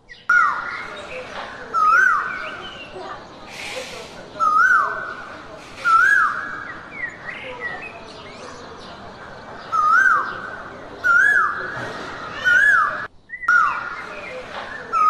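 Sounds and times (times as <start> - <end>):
soft bird chirps: 0.0 - 15.0
jungle ambience hiss: 3.3 - 7.0.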